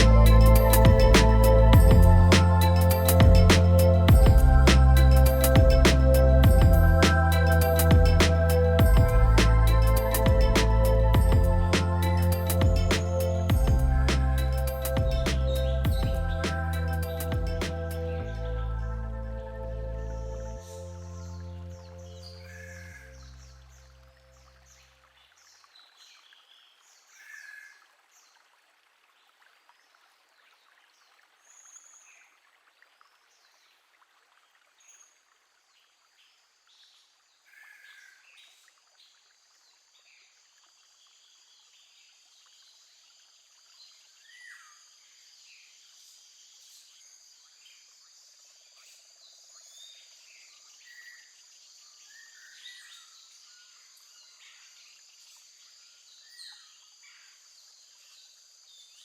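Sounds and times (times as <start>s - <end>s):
birds singing: 0.0s - 18.6s
high-pitched drone: 0.0s - 21.5s.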